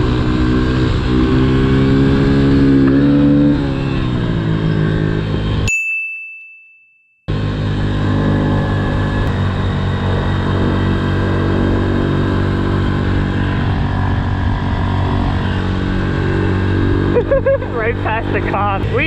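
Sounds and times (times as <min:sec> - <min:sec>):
motorbike engine running: 0:00.0 - 0:05.7, 0:07.3 - 0:19.0.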